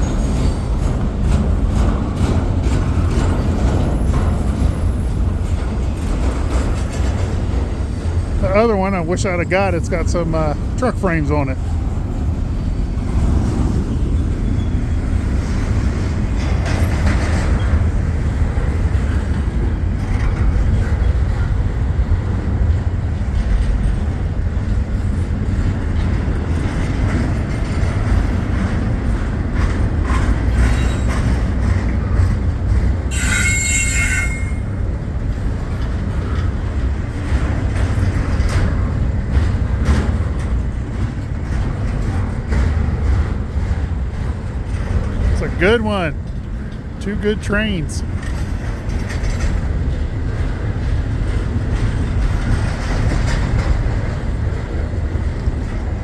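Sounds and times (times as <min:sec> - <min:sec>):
freight train wheels rumbling: 0:00.0 - 0:56.0
brief high squeal: 0:33.1 - 0:34.7
train wheel clicks: 0:48.1 - 0:56.0.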